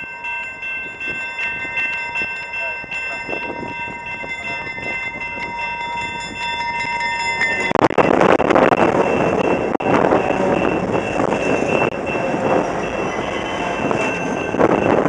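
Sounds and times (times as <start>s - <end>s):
diesel locomotive passing: 0.0s - 15.0s.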